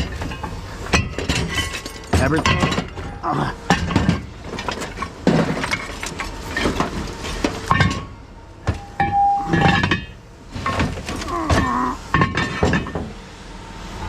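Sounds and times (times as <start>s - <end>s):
scrap metal clinking: 0.0s - 13.0s
brief ringing tone: 8.8s - 9.6s.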